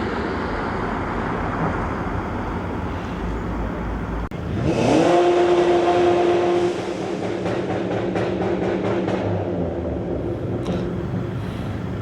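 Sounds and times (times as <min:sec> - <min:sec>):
car tyre and road noise: 0:00.0 - 0:12.0
engine revving: 0:04.3 - 0:11.2.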